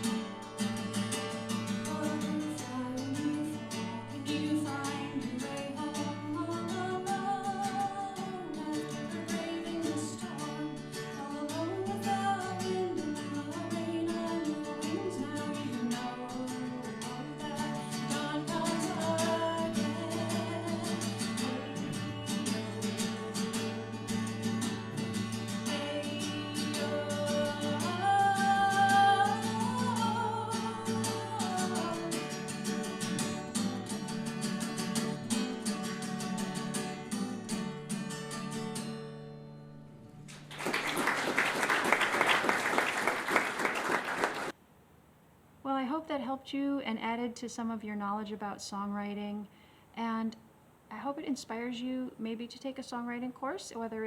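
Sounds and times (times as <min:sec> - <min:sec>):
acoustic guitar chords: 0:00.0 - 0:44.5
person singing: 0:01.8 - 0:33.4.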